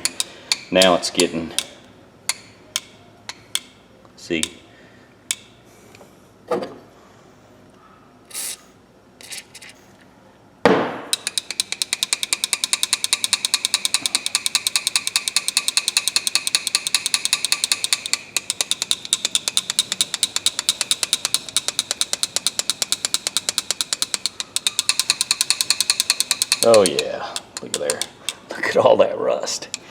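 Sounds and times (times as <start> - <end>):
rapid mechanical clicking: 0.0 - 1.7, 11.1 - 28.7, 29.5 - 29.9.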